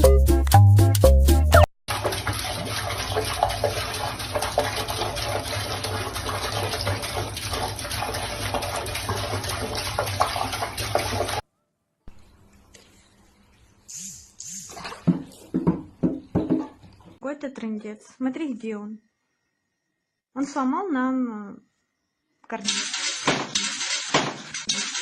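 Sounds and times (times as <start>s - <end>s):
running water rushing: 1.9s - 11.4s, 22.7s - 25.0s.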